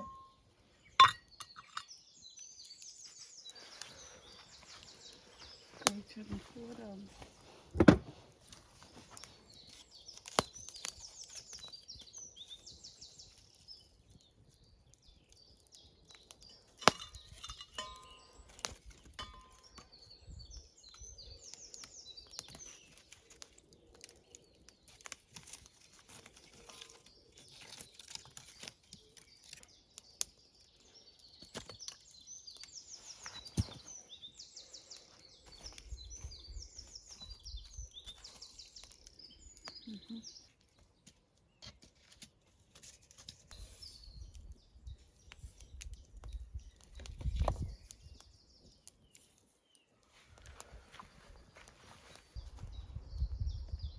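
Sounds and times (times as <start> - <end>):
songbirds trilling: 0.0 - 7.2, 7.9 - 41.8.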